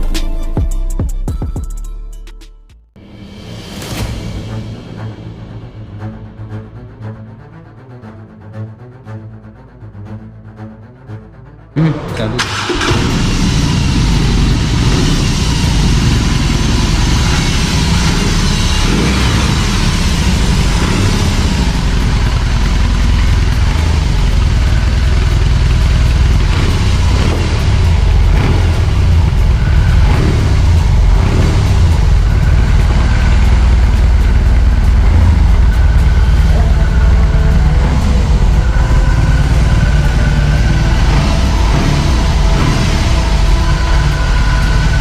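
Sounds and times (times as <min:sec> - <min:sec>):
motorcycle engine rumbling: 0:11.8 - 0:45.0.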